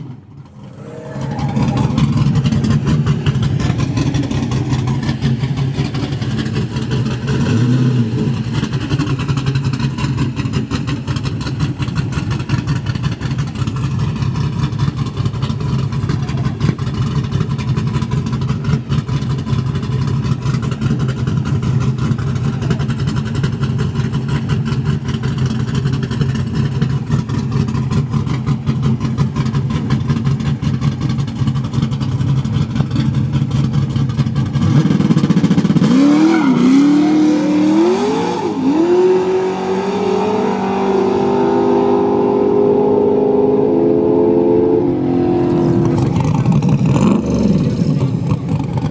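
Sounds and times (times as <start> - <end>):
race car engine choppy idle: 1.6 - 35.8, 44.2 - 48.9.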